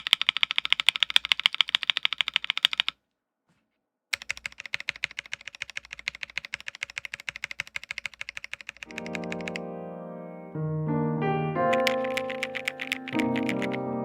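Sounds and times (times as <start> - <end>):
fast mechanical keyboard typing: 0.0 - 3.0, 4.1 - 9.6, 11.7 - 13.9.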